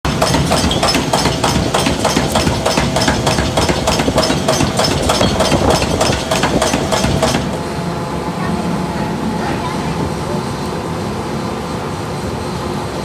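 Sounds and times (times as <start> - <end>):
workshop din: 0.0 - 7.7
rapid ringing metal strikes: 0.1 - 7.6.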